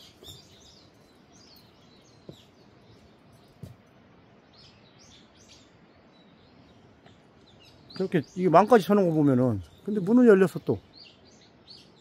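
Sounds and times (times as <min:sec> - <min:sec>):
faint background hiss: 0:00.0 - 0:12.0
small birds chirping: 0:00.0 - 0:12.0
soft knocks: 0:03.6 - 0:03.8.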